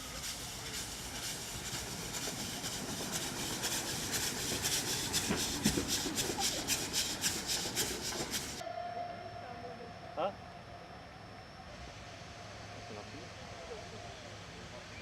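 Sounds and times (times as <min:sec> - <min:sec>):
rhythmic train wheel beat: 0:00.0 - 0:08.6
train running past: 0:00.0 - 0:15.0.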